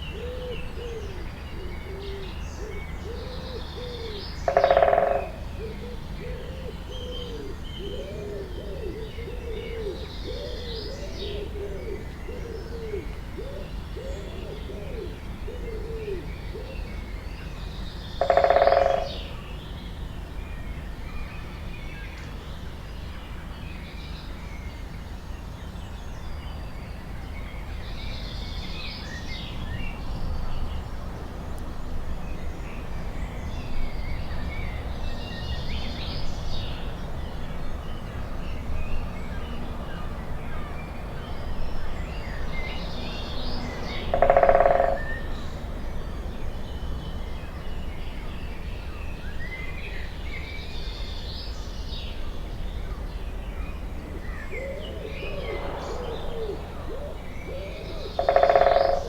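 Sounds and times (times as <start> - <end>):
forest birds singing: 0.0 - 59.0
steady low rumble: 52.3 - 58.2.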